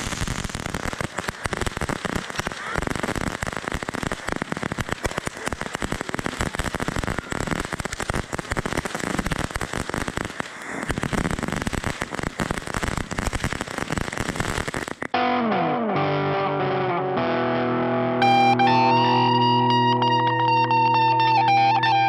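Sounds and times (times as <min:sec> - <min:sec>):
fireworks crackling and popping: 0:00.0 - 0:15.2.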